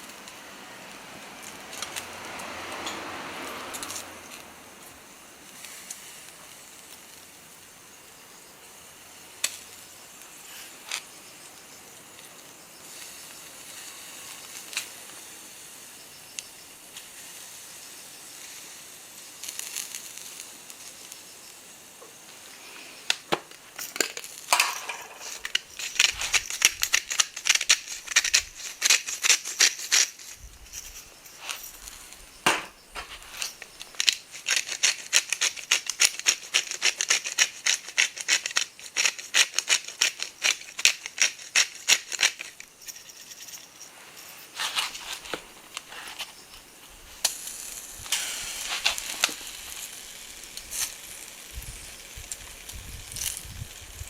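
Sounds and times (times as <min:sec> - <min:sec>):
fire crackling and popping: 0:00.0 - 0:43.1, 0:43.8 - 0:54.0
skewers sizzling on grill: 0:00.0 - 0:54.0.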